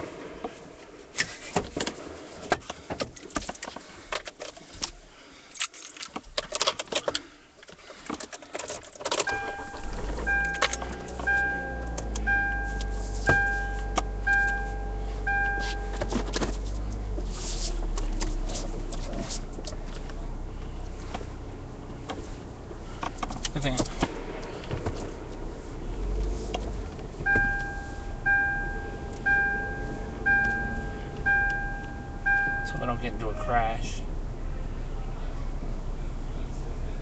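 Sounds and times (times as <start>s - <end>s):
car keys jangling: 3.1s - 17.0s
car engine hum: 6.2s - 37.0s
two-note warning chime: 27.3s - 33.2s.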